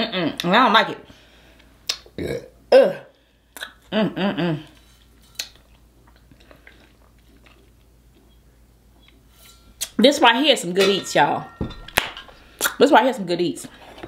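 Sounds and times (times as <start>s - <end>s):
soft chewing: 4.7s - 10.0s.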